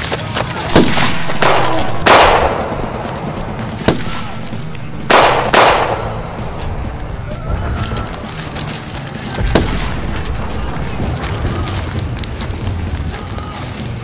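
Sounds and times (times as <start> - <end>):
background music: 0.0 - 14.0
gunshots with ringing tail: 0.7 - 6.9, 9.5 - 11.1.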